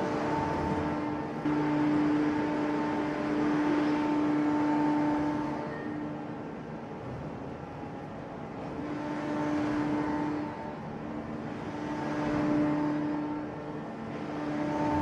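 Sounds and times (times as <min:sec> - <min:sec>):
hydraulic press humming: 0:14.6 - 0:15.0.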